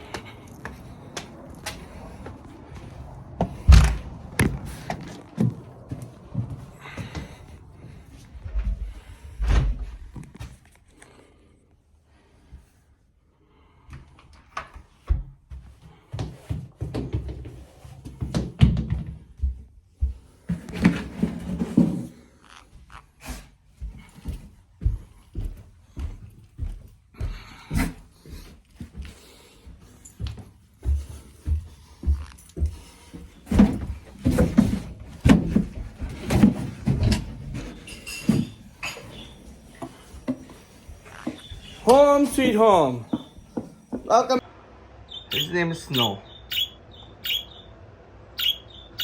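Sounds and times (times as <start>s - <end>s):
door opening and shutting: 3.6s - 5.5s
knocks and handling clatter: 33.4s - 41.8s.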